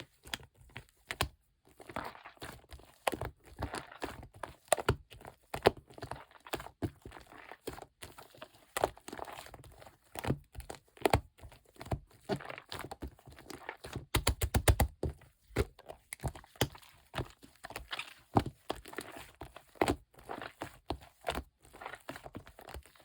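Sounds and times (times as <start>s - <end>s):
slime squished by hand: 13.5s - 20.6s.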